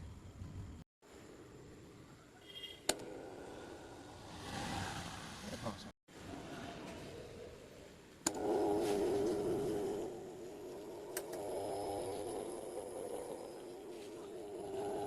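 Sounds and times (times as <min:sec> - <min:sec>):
small electric motor humming: 0:08.3 - 0:15.0.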